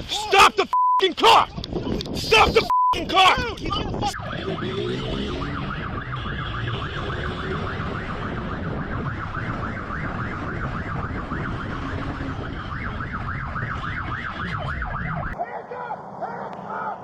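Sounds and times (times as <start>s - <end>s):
vehicle and road rumble: 1.4s - 17.0s
police siren yelping: 3.0s - 17.0s.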